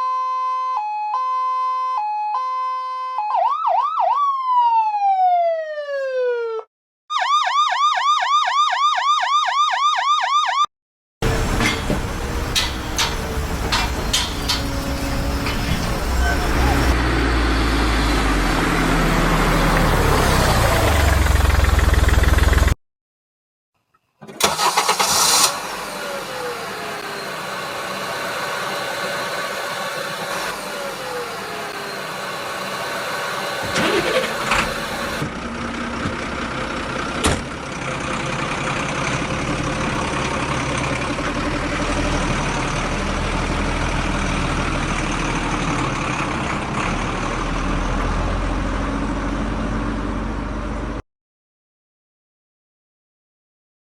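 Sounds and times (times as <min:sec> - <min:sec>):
vehicle engine running: 0:11.2 - 0:22.8, 0:25.6 - 0:51.0.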